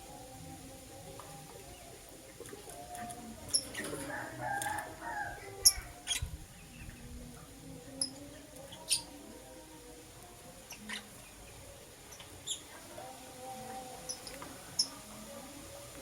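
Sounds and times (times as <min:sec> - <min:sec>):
lovebirds chirping: 0:02.8 - 0:07.2, 0:10.7 - 0:13.0.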